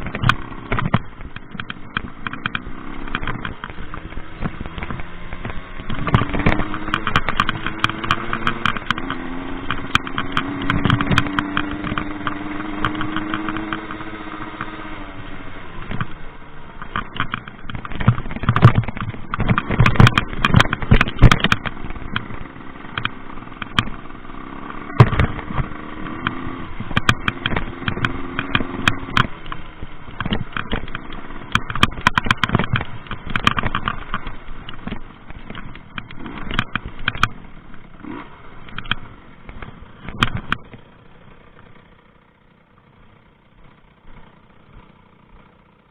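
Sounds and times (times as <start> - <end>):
moped engine revving: 0.0 - 45.9
loud knocks and rattles: 16.9 - 24.0.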